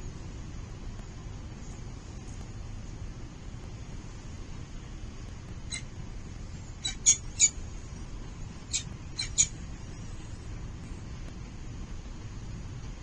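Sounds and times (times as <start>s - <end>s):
low background rumble: 0.0s - 13.0s
falcon chicks cheeping: 5.7s - 5.9s, 6.8s - 7.6s, 8.6s - 9.6s.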